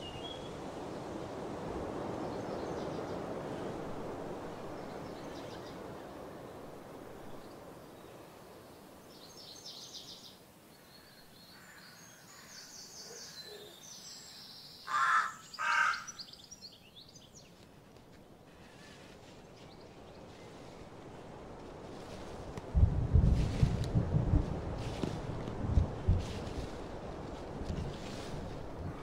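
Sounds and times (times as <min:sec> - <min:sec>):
outdoor background noise: 0:00.0 - 0:29.0
bird calls: 0:09.2 - 0:17.6.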